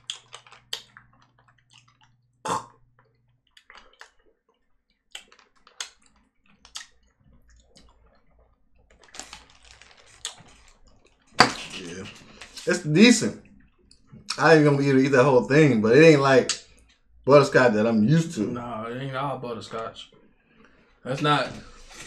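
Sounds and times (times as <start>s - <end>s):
candy chewing: 0.0s - 12.8s
plastic bag rustling: 8.9s - 12.7s.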